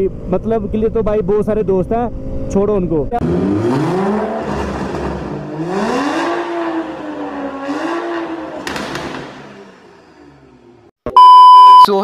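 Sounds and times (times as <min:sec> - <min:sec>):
car engine revving: 0:03.1 - 0:10.9.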